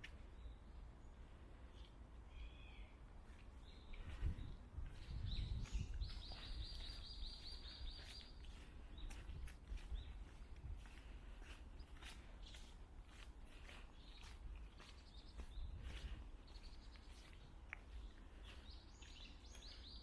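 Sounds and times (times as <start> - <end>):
footsteps on path: 3.3 - 20.0
birds chirping: 3.6 - 10.4, 13.5 - 20.0.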